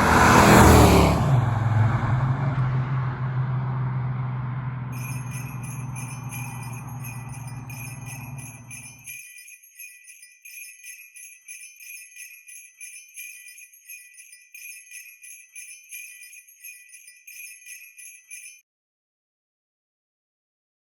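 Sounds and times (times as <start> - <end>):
car engine running: 0.0 - 9.0
jingle bells shaken: 5.0 - 18.6.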